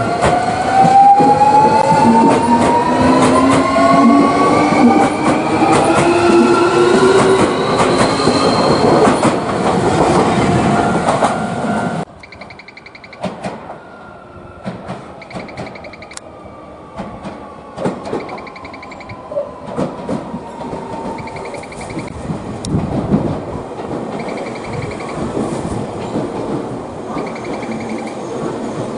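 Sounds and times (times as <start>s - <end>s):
wheels clattering on rails: 0.2s - 11.4s, 14.6s - 16.2s, 17.0s - 28.9s
pulsing electronic beep: 15.2s - 16.2s, 21.2s - 22.1s.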